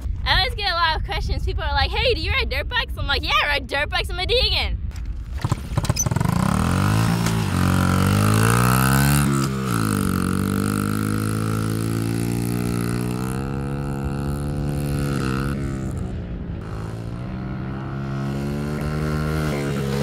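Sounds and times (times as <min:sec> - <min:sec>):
dirt bike engine accelerating: 0:05.3 - 0:20.0.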